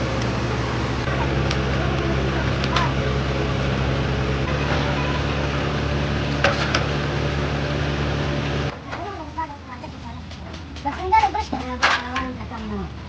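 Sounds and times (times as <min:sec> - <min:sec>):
truck engine humming: 0:00.0 - 0:08.8.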